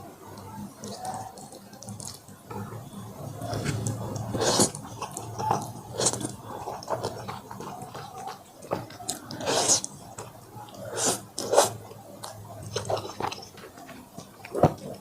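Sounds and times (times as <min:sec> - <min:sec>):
wet chewing: 0:03.4 - 0:15.0.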